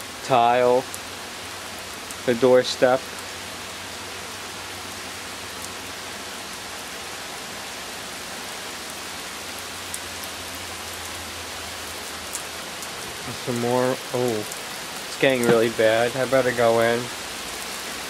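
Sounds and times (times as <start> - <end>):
heavy rain pouring: 0.0 - 18.0
sharp raindrop hits: 12.2 - 18.0.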